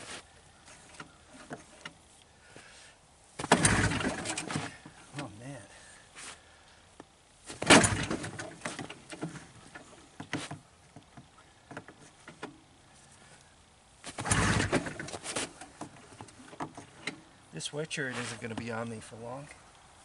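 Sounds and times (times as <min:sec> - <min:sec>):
engine cranking pulses: 0:03.4 - 0:05.3, 0:07.5 - 0:10.0, 0:14.0 - 0:17.3
recoil starter rope pulls: 0:03.4 - 0:05.5, 0:07.5 - 0:10.6, 0:14.0 - 0:17.2.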